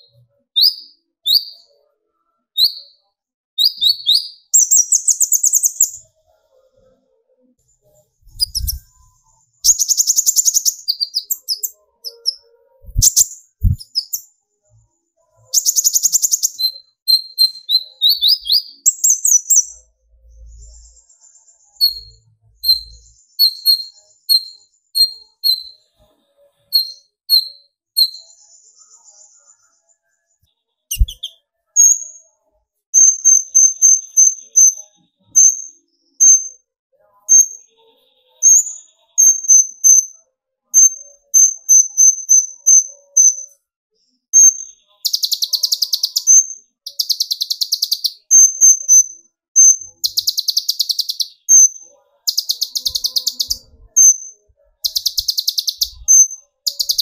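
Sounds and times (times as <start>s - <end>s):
sunbird singing: 0.0s - 1.7s, 3.6s - 6.2s, 8.2s - 14.3s, 15.5s - 19.8s, 21.7s - 25.8s, 26.7s - 29.0s, 30.9s - 32.2s, 44.4s - 57.0s.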